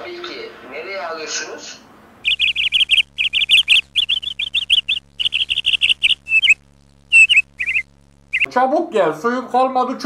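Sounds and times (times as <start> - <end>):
faint steady hum: 0.0 - 10.0
small bird twittering: 2.2 - 8.5.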